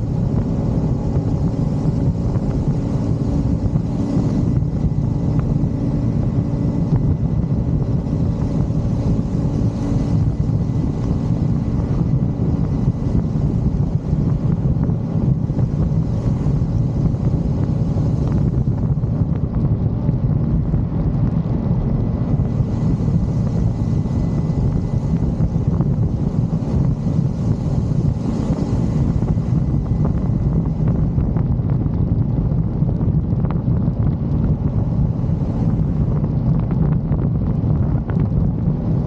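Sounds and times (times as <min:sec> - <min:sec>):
motorcycle engine and road rumble: 0:00.0 - 0:39.0
wind buffeting microphone: 0:00.0 - 0:39.0.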